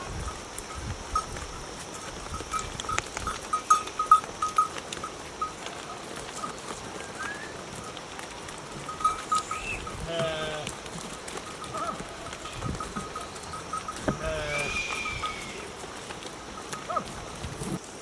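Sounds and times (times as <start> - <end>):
sheep bells clinking: 0.0 - 17.9
sheep bleating: 9.4 - 10.8, 14.1 - 15.7.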